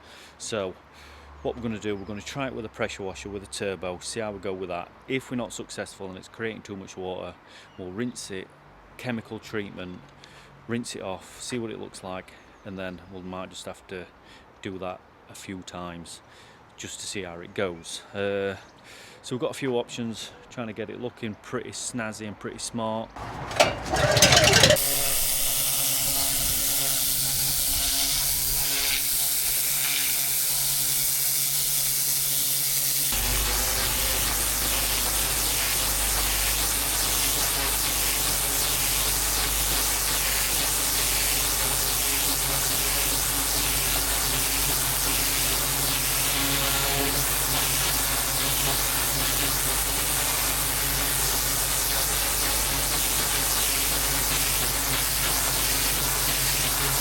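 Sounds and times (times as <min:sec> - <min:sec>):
pressure washer machine hum: 0:23.2 - 0:35.9, 0:49.0 - 0:57.0
pressure washer spraying paving: 0:23.2 - 0:57.0.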